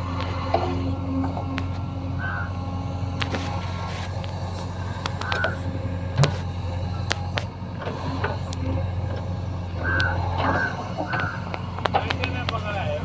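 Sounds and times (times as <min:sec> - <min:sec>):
heavy diesel engine running: 0:00.0 - 0:13.0
sharp clicks and knocks: 0:10.0 - 0:12.7.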